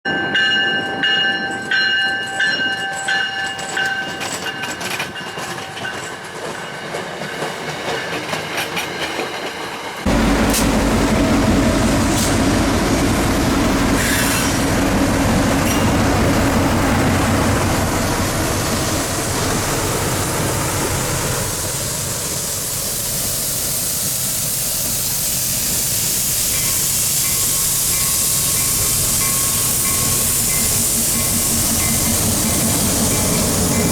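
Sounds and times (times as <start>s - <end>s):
train rumble with clattering wheels: 0.2s - 33.9s
train wheels squealing: 14.0s - 14.7s, 15.6s - 16.2s, 24.3s - 33.9s
hiss: 18.4s - 33.9s.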